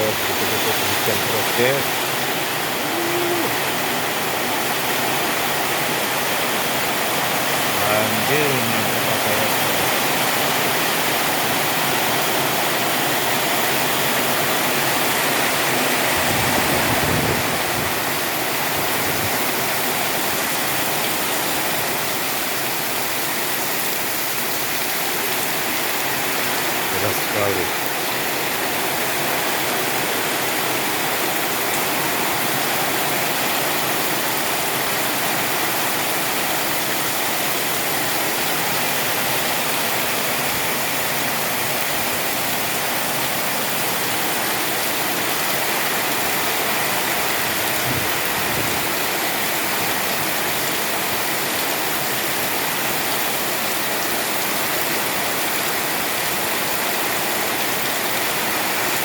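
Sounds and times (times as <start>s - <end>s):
heavy rain hissing: 0.0s - 12.1s, 25.2s - 30.3s.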